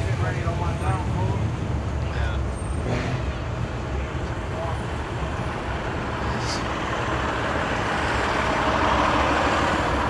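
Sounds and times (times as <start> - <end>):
vehicle passing: 0.0 - 5.2
traffic rumble: 0.0 - 10.0.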